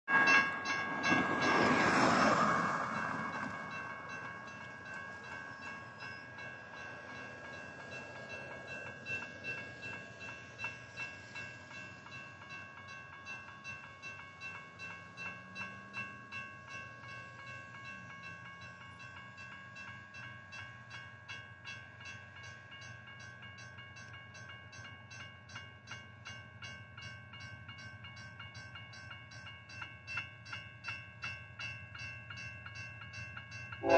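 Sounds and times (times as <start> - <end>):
ringing crossing signal: 26.6 - 33.9.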